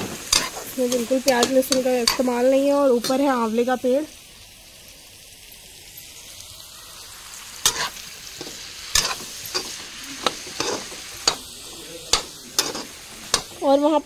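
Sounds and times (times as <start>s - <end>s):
spoon clacking against pan: 0.0s - 2.3s, 7.6s - 11.5s, 12.1s - 13.6s
vegetables sizzling in oil: 0.0s - 14.0s.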